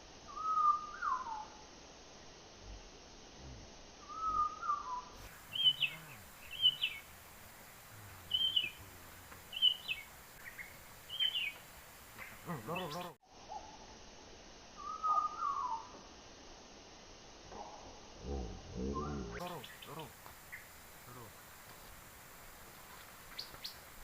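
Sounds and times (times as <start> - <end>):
songbird high chirps: 0.3 - 1.6, 4.0 - 7.1, 8.1 - 13.8, 14.8 - 16.1, 17.6 - 21.3, 22.9 - 24.0
bird pitched cry: 8.3 - 8.8, 9.5 - 11.6, 14.8 - 15.9.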